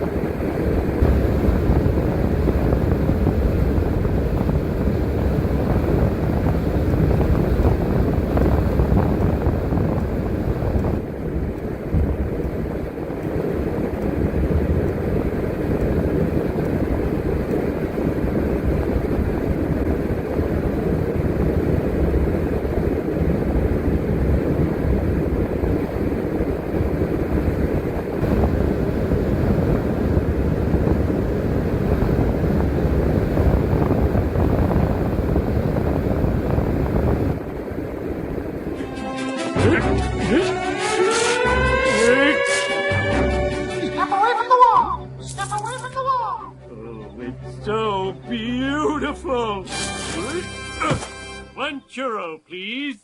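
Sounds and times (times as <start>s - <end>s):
wind: 0.0s - 39.4s
bus engine rumble: 0.0s - 50.4s
road noise: 0.0s - 51.6s.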